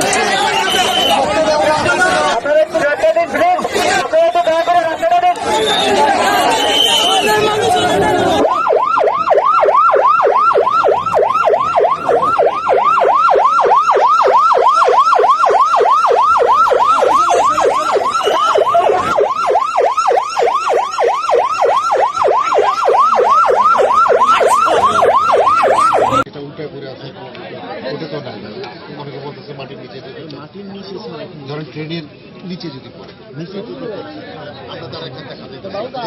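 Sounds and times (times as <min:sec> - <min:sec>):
emergency siren yelping: 0:04.0 - 0:26.3.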